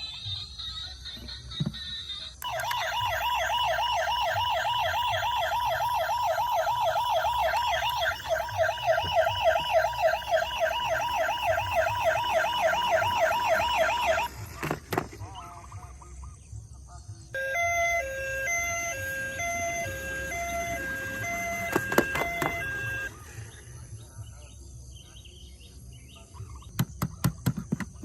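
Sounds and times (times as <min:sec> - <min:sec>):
electronic toy siren warbling: 0:02.4 - 0:14.8, 0:17.4 - 0:23.2.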